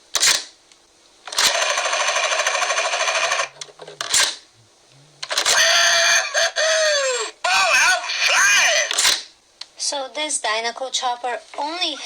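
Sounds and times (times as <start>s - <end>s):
toy helicopter rotor sound effect: 1.4s - 3.5s, 5.3s - 7.0s, 7.7s - 9.2s
loud electronic toy sound: 5.3s - 9.1s.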